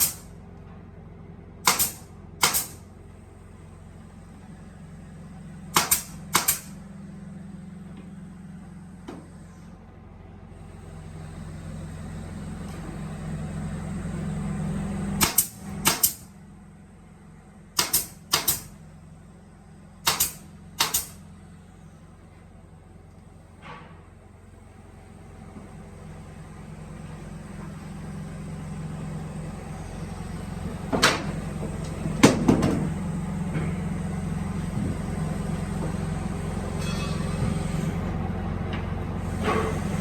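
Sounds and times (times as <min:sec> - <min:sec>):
drilling machine humming: 0:10.6 - 0:16.4, 0:24.4 - 0:38.4, 0:39.0 - 0:40.0.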